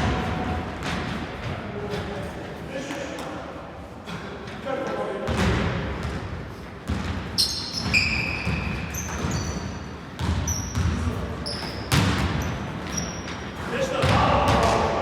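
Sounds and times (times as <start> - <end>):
basketball bouncing on gym floor: 0.0 - 2.1, 5.2 - 15.0
sneakers squeaking on court: 5.3 - 14.8.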